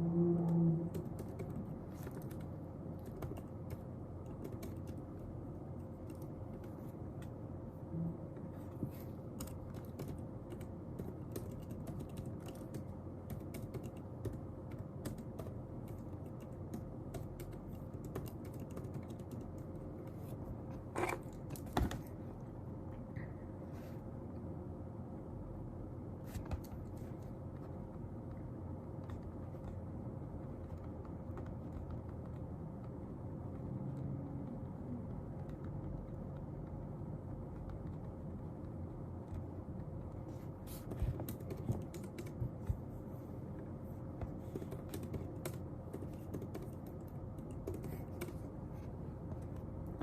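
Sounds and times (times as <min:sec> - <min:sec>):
room hum: 0:00.0 - 0:50.0
typing on computer keyboard: 0:00.3 - 0:07.4, 0:08.6 - 0:20.0, 0:28.8 - 0:40.1, 0:41.1 - 0:42.7, 0:44.3 - 0:48.6.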